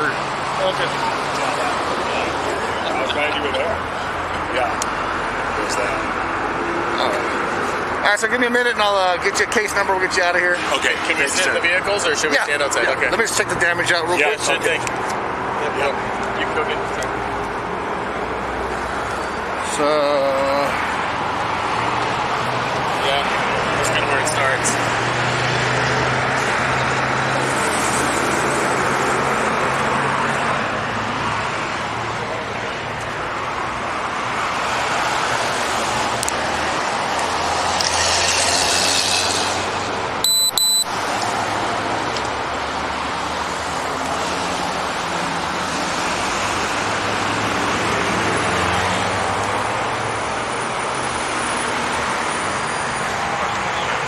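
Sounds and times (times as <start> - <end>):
highway traffic noise: 0.0 - 54.0
vehicle passing: 9.9 - 54.0
thin high electronic tone: 40.2 - 40.9.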